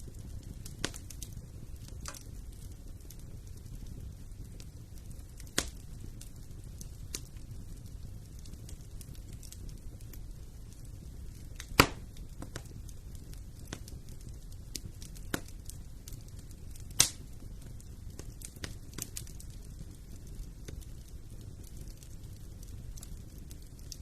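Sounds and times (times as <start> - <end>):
fire crackling: 0.0 - 24.0
fire rumbling in fireplace: 0.0 - 24.0
loud wood pops: 11.7 - 12.0.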